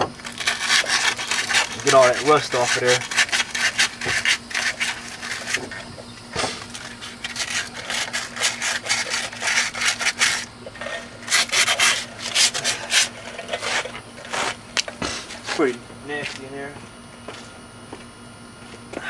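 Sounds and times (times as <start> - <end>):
sandpaper rasping on metal: 0.4 - 5.9, 6.8 - 14.6.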